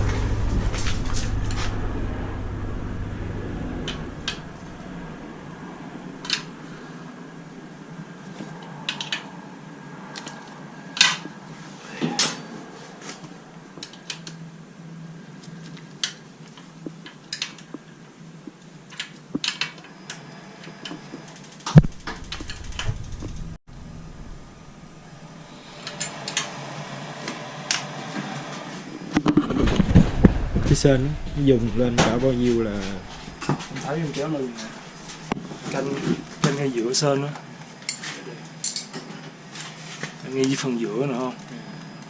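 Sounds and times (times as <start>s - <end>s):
faint steady hum: 0.0s - 8.4s, 13.3s - 27.1s, 28.9s - 37.8s.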